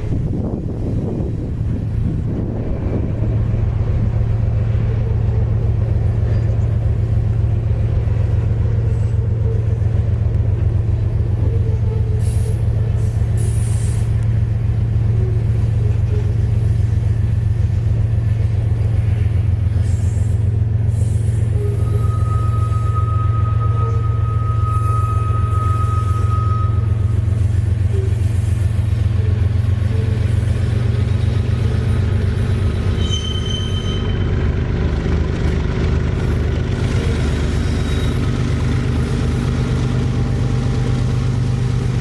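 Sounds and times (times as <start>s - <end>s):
diesel locomotive engine humming: 0.0s - 42.0s.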